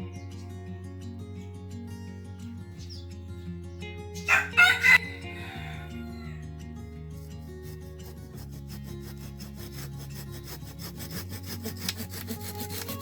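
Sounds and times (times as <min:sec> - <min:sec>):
hand saw cutting wood: 0:07.0 - 0:13.0.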